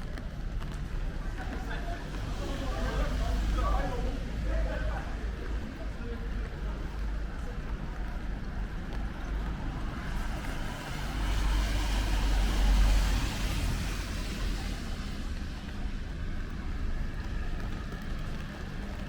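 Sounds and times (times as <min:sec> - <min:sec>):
car driving past on wet street: 0:00.5 - 0:05.8, 0:08.8 - 0:19.0.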